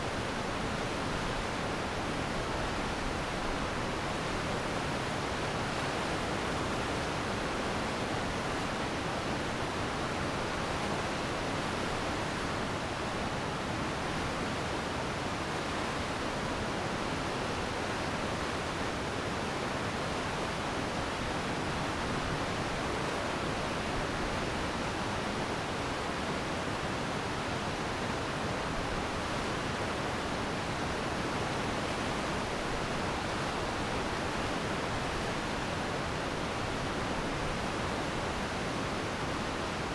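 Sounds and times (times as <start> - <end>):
stream rushing: 17.1 - 39.9.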